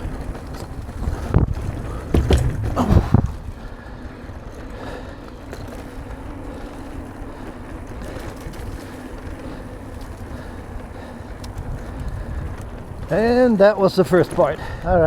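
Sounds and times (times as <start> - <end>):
wind on microphone: 0.0 - 3.8, 11.5 - 13.5
bike tyres rumbling on dirt: 0.0 - 15.0.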